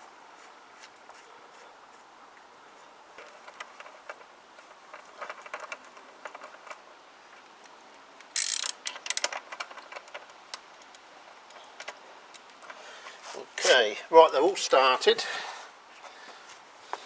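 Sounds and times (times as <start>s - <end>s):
metallic clicks of bolts: 8.2s - 12.5s.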